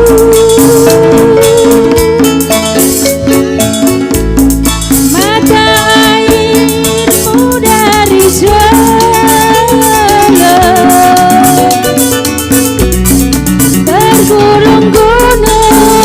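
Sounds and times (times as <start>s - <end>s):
person singing: 0.0s - 2.5s, 5.1s - 12.2s, 13.8s - 16.0s
shaker: 0.0s - 16.0s
steady beat: 0.0s - 16.0s
strummed accompaniment: 0.0s - 16.0s.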